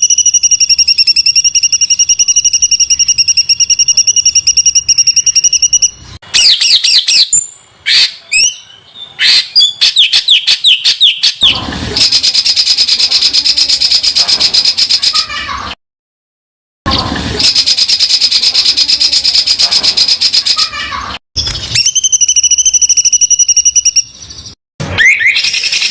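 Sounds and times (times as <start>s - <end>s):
songbird singing trills: 0.0s - 15.2s.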